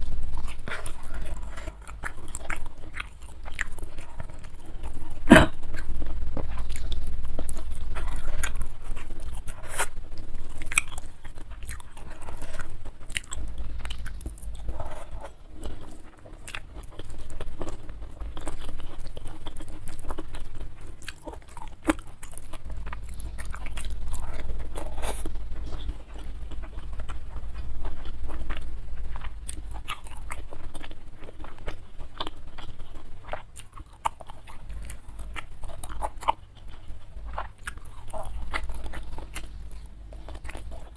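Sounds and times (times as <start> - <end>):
close-miked chewing: 0.0 - 40.9.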